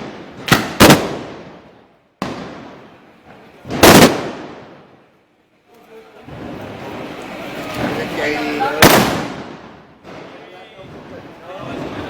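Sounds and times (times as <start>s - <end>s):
gunshots with long echo: 0.0s - 3.0s, 3.7s - 4.9s, 8.8s - 10.4s.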